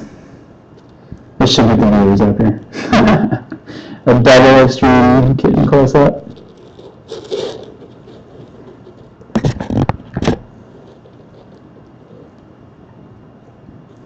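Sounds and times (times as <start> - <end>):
scraping rustling noises: 5.9 - 12.8.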